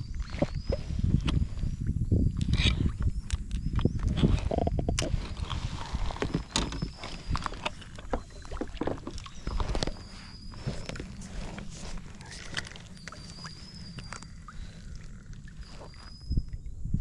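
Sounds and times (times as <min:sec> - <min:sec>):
knocks and clicks on kayak hull: 0:06.1 - 0:10.0.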